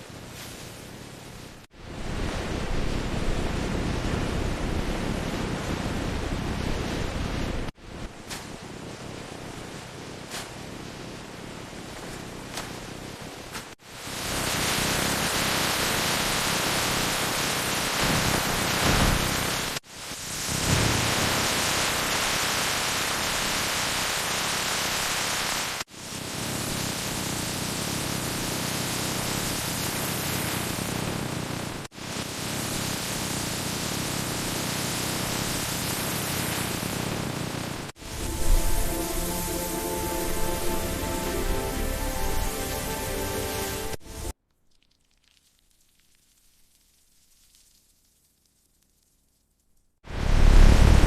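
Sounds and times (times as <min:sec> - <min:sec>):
steady rushing noise: 0:01.7 - 0:44.3, 0:50.1 - 0:51.0
steady hiss: 0:07.6 - 0:37.0, 0:37.8 - 0:44.4.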